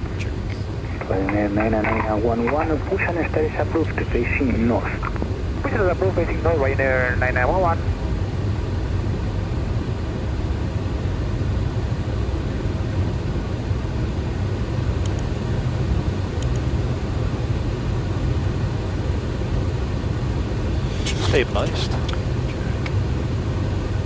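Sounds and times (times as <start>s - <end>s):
rush of airflow: 20.7s - 21.6s.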